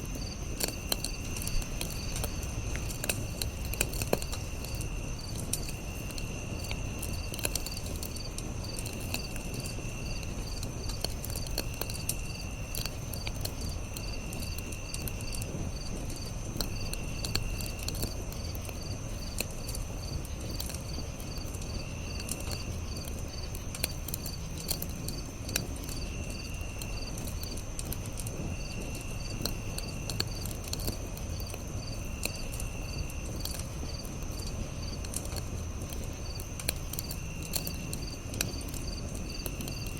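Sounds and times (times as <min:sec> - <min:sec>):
campfire crackling: 0:00.0 - 0:39.9
high insect whine: 0:00.0 - 0:39.9
insect trills: 0:00.0 - 0:39.9
insects chirping: 0:00.0 - 0:39.9.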